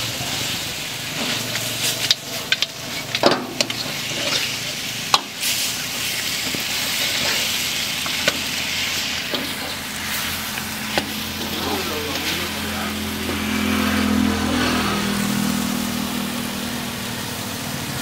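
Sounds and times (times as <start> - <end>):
curry sizzling in a pan: 0.0 - 18.0
metal spatula scraping a pan: 1.1 - 11.6.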